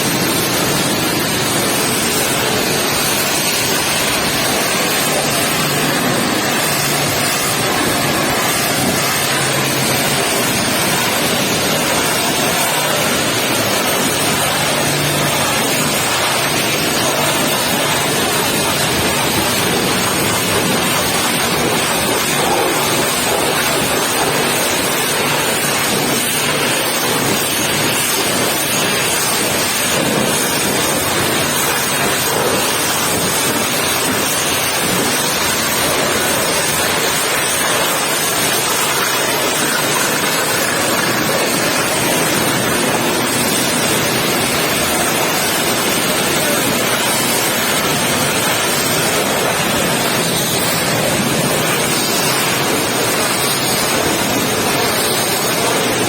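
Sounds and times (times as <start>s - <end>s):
pressure washer spraying water: 0.0s - 56.0s.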